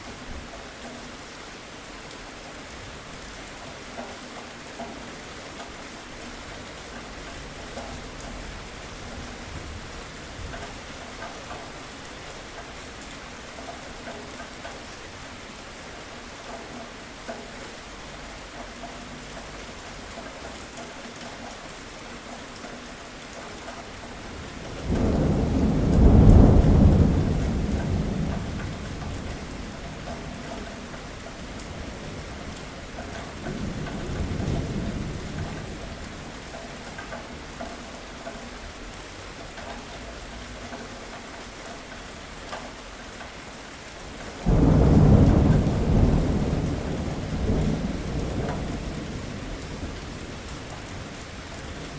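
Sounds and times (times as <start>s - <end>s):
steady rain falling: 0.0s - 51.9s
thunder rumbling and clapping: 24.4s - 36.2s, 44.4s - 51.9s.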